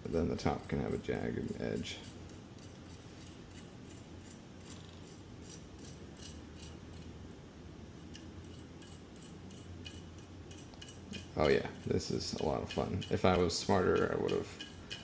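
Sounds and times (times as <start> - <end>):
low steady hum: 0.0 - 15.0
metal parts clicking and scraping: 8.1 - 11.3, 12.3 - 15.0.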